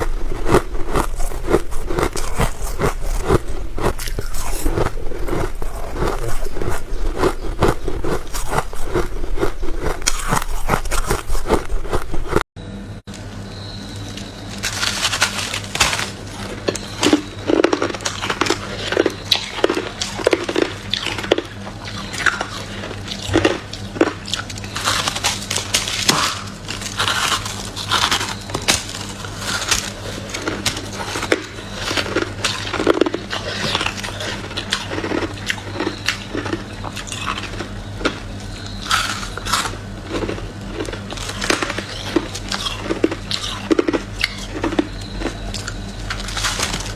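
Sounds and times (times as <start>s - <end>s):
ice crunching being chewed: 0.0s - 12.5s, 16.7s - 46.9s
faint steady hum: 0.0s - 14.6s.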